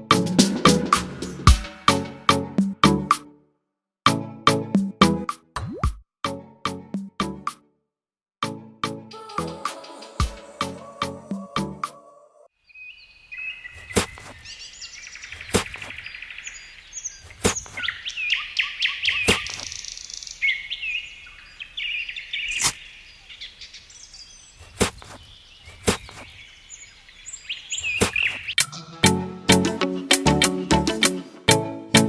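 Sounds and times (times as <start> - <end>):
birds chirping and trilling: 12.6 - 29.0.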